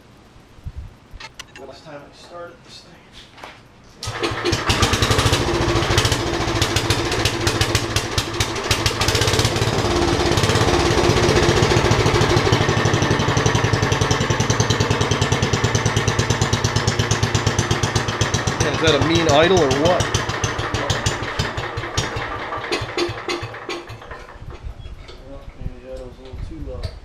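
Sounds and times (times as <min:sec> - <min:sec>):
generator engine idling: 0:04.0 - 0:24.7
generator engine rope pull start: 0:04.0 - 0:26.1.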